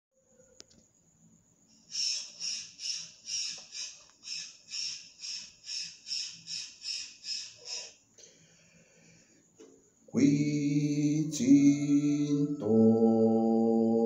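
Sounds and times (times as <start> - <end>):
harsh raspy bird call: 1.9 - 8.0.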